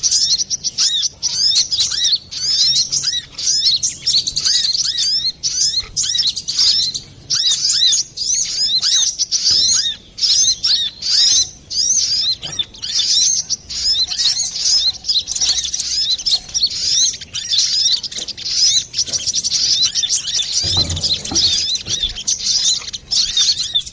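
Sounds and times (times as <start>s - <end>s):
sunbird chirping song: 0.0s - 23.9s
low thump: 20.6s - 22.3s.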